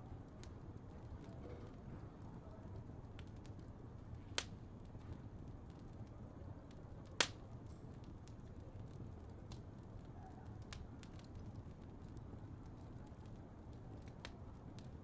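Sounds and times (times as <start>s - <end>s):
faint fire crackles: 0.0s - 15.0s
fire burning with low rumble: 0.0s - 15.0s
sharp fire pops: 4.2s - 5.7s, 7.1s - 8.5s.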